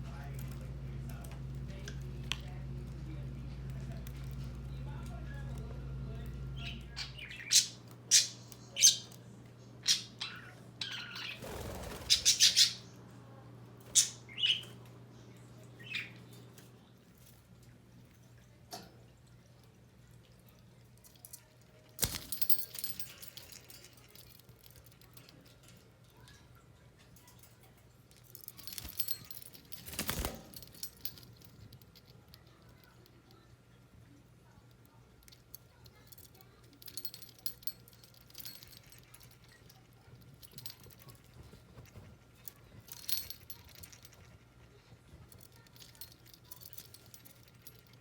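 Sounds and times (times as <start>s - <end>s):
budgerigars chirping and squawking: 9.8s - 12.8s
small metallic clattering and jingling: 20.8s - 33.4s, 34.9s - 48.0s.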